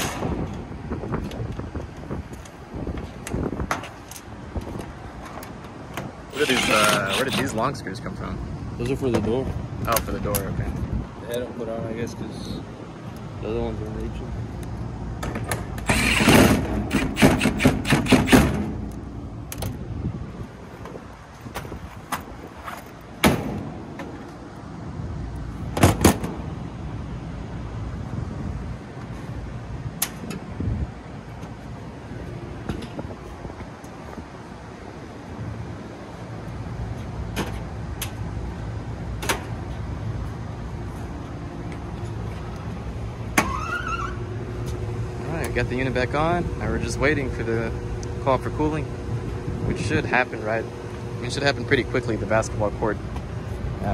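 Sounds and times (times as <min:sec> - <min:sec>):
cordless power driver whirring: 0:15.8 - 0:17.2
steady low rumble: 0:18.5 - 0:43.4, 0:44.2 - 0:53.9.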